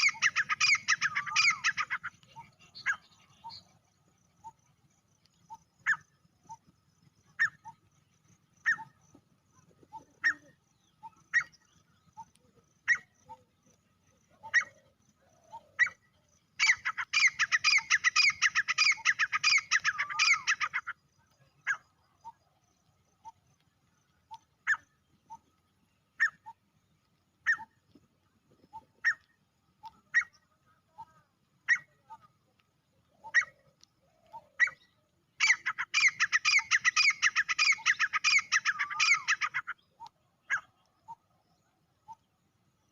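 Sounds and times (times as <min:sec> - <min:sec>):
francolin calling: 0:00.0 - 0:04.7, 0:08.6 - 0:09.2, 0:14.2 - 0:22.4, 0:27.4 - 0:27.8, 0:28.6 - 0:32.4, 0:33.0 - 0:42.3.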